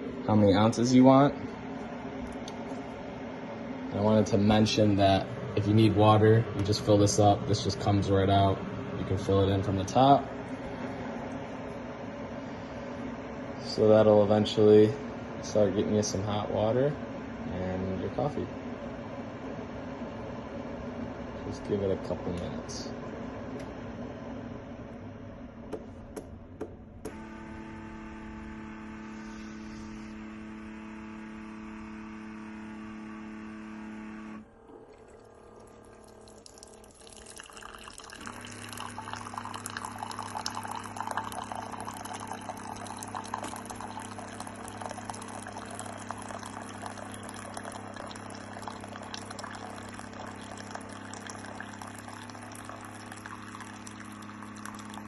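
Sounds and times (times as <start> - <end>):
coffee machine humming: 0.0 - 55.0
coffee streaming into a cup: 27.1 - 55.0.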